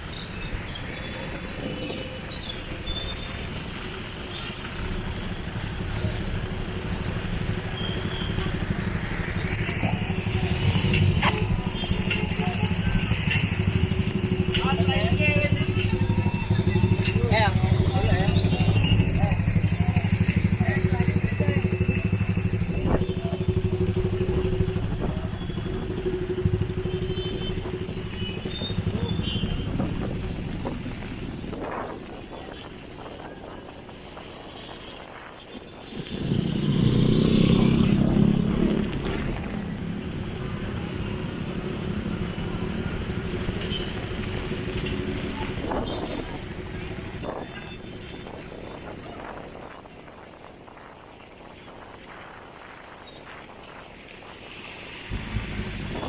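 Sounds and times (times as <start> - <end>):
vehicle engine approaching: 36.1 - 43.5, 55.1 - 56.0.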